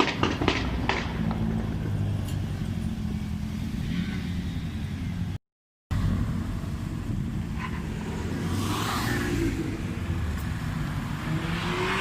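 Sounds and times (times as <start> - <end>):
sharp cracks: 0.0 - 1.5.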